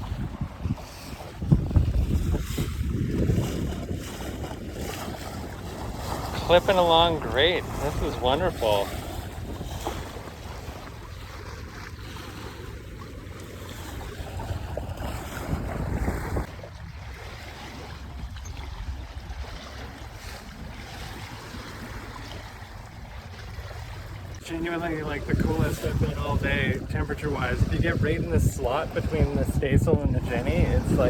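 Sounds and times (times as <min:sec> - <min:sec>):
water rushing past hull: 0:00.0 - 0:31.0
wind buffeting microphone: 0:00.0 - 0:31.0.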